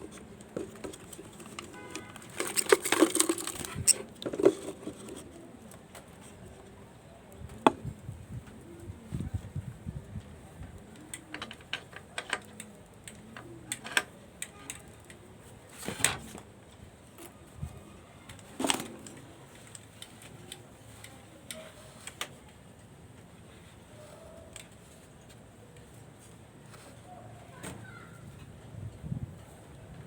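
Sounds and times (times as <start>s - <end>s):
birds pecking and moving: 0.0s - 9.4s.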